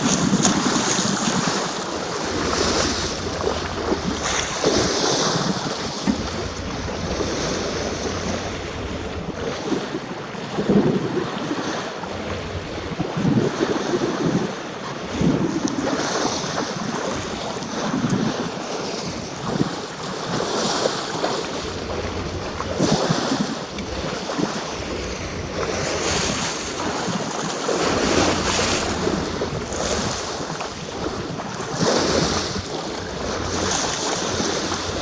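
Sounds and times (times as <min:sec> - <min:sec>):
water splashing past boat hull: 0:00.0 - 0:35.0
wind buffeting microphone: 0:00.0 - 0:35.0
steady low hum: 0:01.2 - 0:10.3, 0:11.9 - 0:13.5, 0:21.4 - 0:35.0.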